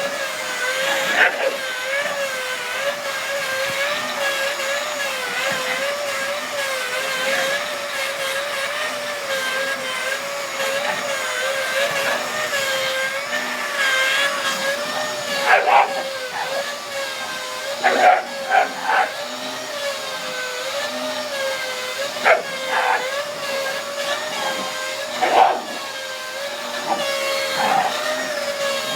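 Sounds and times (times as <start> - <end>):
vacuum cleaner motor whine: 0.0 - 28.9.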